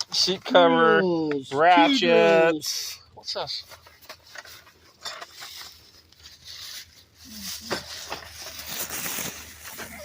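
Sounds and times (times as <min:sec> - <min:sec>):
rustling of tools and parts: 0:02.7 - 0:10.0.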